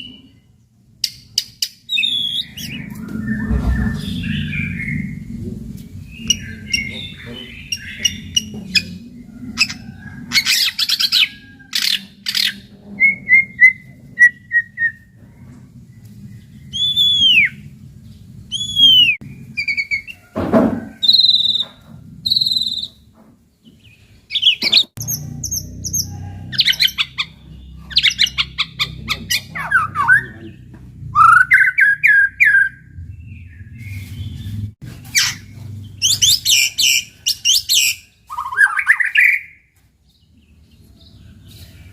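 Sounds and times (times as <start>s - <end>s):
songbird whistling and trilling: 1.1s - 5.2s, 16.6s - 17.6s, 18.5s - 20.2s, 21.0s - 23.0s, 31.2s - 33.4s, 36.0s - 39.6s
faint low rumble: 2.0s - 20.3s, 25.0s - 36.5s.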